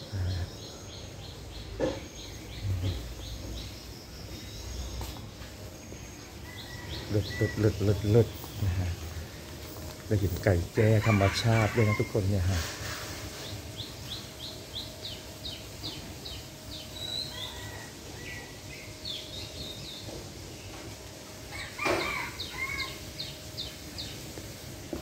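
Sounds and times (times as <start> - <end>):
outdoor background noise: 0.0 - 25.0.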